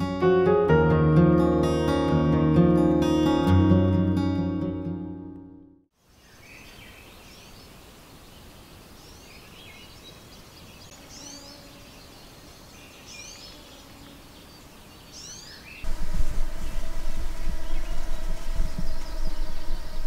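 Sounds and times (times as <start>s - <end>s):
soft bird chirps: 6.0s - 15.9s, 16.6s - 20.0s
low hiss: 15.8s - 20.0s.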